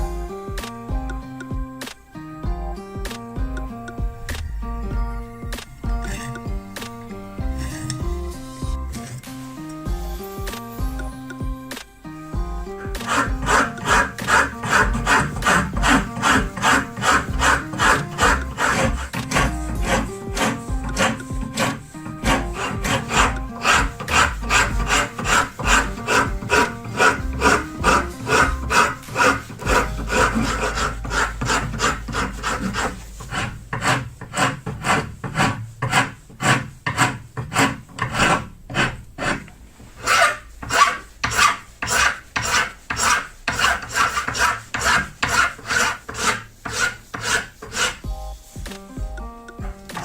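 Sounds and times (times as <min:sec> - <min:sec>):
file rasping on knife: 0:06.1 - 0:06.4, 0:13.0 - 0:48.0.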